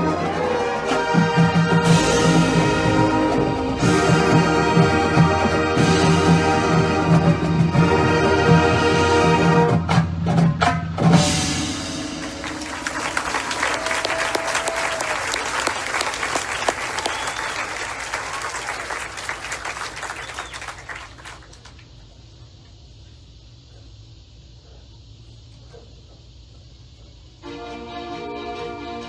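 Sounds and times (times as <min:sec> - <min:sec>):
marching band brass chord: 0:00.0 - 0:10.1, 0:11.0 - 0:21.5, 0:27.4 - 0:29.0
drum hits: 0:09.9 - 0:13.4
audience applause: 0:12.2 - 0:21.9.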